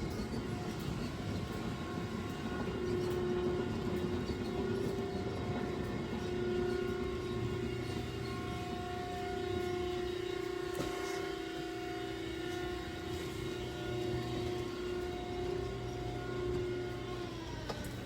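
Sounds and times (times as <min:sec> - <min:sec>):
machine humming: 0:00.1 - 0:18.0.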